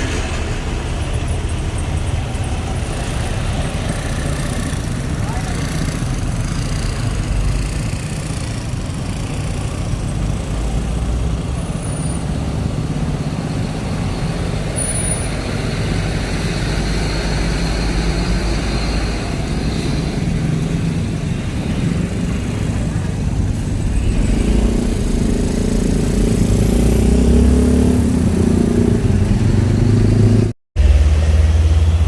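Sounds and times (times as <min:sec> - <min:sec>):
heavy vehicle engines: 0:00.0 - 0:32.0
road traffic rumble: 0:00.0 - 0:32.0.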